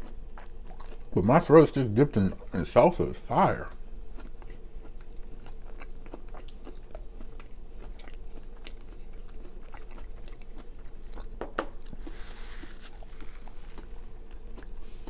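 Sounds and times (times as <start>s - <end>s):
person chewing: 0.0s - 1.2s, 3.6s - 15.0s
low electrical hum: 0.0s - 15.0s
soft rustle: 11.9s - 14.0s.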